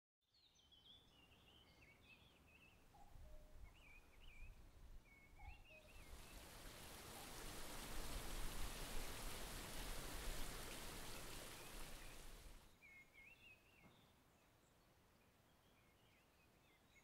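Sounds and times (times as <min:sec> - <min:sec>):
birds singing: 0:00.4 - 0:06.5, 0:11.0 - 0:14.8
rushing stream water: 0:06.0 - 0:12.7.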